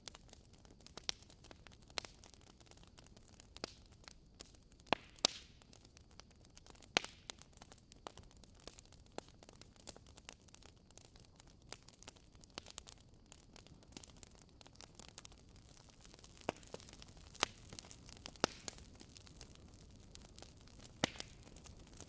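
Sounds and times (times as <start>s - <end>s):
logs crackling in fireplace: 0.0s - 22.0s
loud sharp fire snaps: 4.4s - 5.6s, 15.0s - 22.0s.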